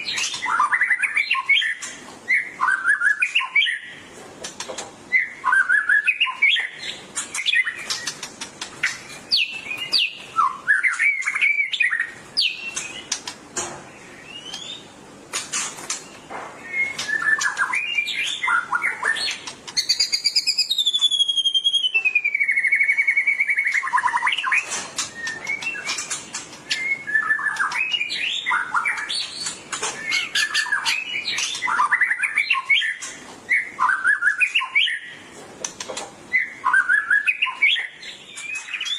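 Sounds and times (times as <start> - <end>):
songbird whistling with clicks: 15.9 - 35.0
long falling bird whistle: 20.0 - 24.6.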